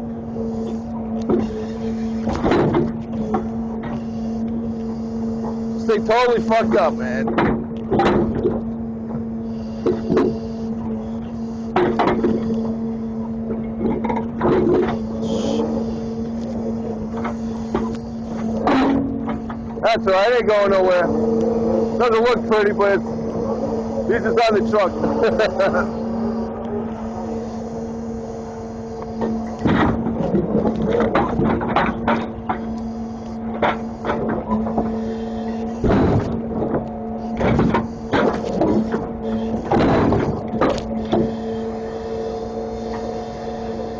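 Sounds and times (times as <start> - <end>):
truck engine running: 0.0 - 43.9
grapple knocking and clunking: 2.3 - 4.0, 7.2 - 9.2, 11.8 - 12.5, 29.2 - 32.8, 35.8 - 41.3.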